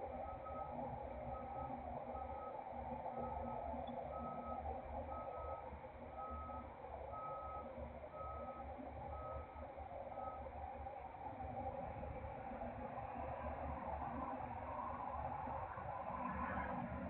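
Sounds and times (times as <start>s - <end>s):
truck reverse alarm beeping: 0.0s - 10.6s
steady low rumble of truck: 0.0s - 17.0s.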